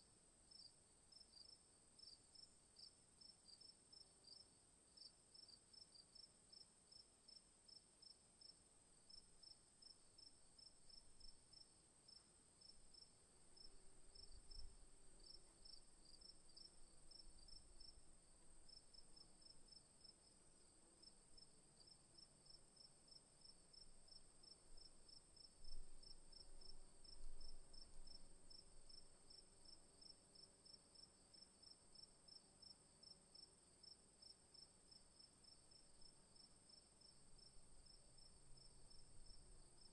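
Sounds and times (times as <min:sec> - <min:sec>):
high insect hum: 0:00.4 - 0:39.9
crickets chirping: 0:08.4 - 0:39.9.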